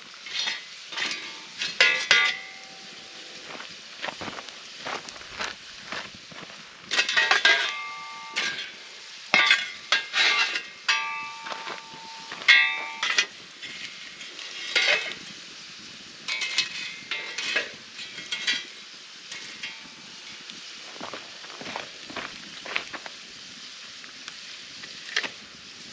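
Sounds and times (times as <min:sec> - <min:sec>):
metal cookware clanking and scraping: 0:00.2 - 0:03.6, 0:06.9 - 0:15.3, 0:16.3 - 0:20.4.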